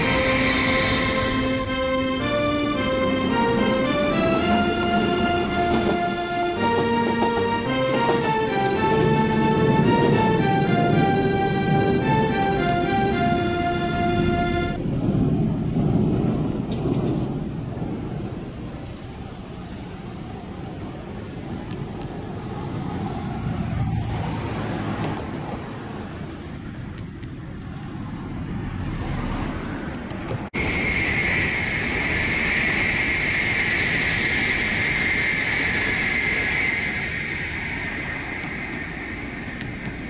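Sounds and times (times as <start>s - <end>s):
high-pitched squeal with rushing: 0.0s - 14.8s, 30.6s - 40.0s
train rumbling on tracks: 0.0s - 40.0s.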